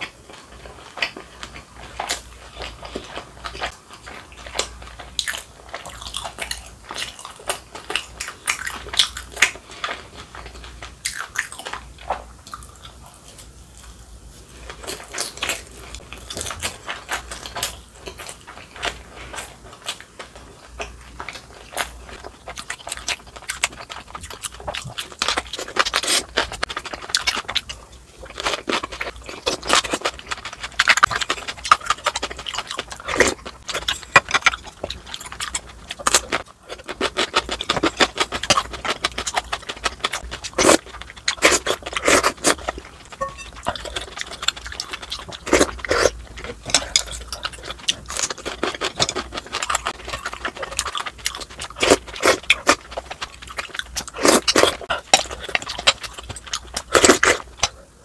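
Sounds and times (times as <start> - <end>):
chewing and crunching food: 0.0 - 58.0.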